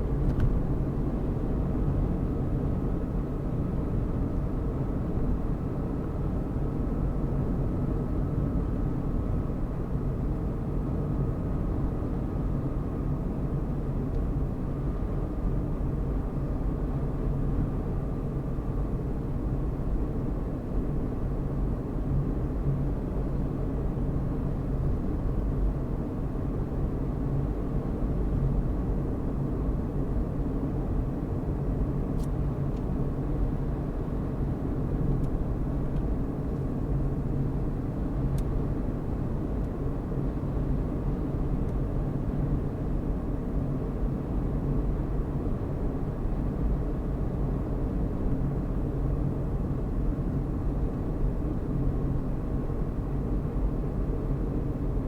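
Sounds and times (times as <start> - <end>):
car engine and tyres rumbling: 0.0 - 2.8.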